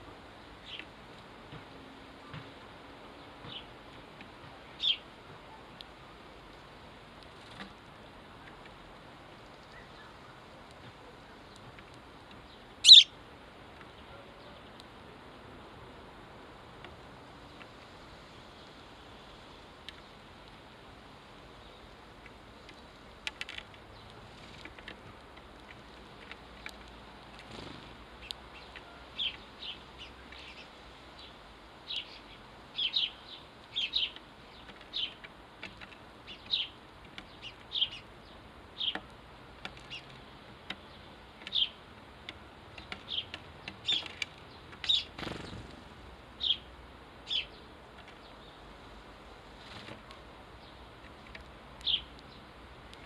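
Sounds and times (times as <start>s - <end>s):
sparrows chirping: 0.6s - 0.9s, 3.2s - 3.8s, 4.5s - 5.6s, 9.6s - 10.5s, 11.1s - 13.2s, 26.0s - 41.9s, 42.7s - 45.8s, 46.4s - 48.8s, 50.5s - 53.0s.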